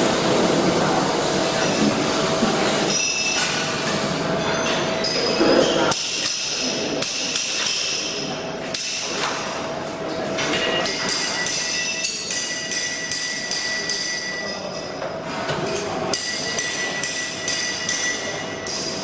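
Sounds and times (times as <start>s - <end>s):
welding hiss and hum: 0.0s - 4.4s.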